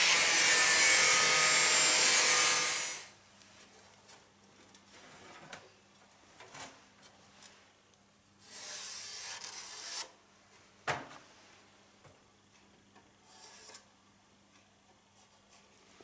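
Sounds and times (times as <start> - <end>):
rasping scrape on metal: 8.4 - 10.1, 13.2 - 13.9.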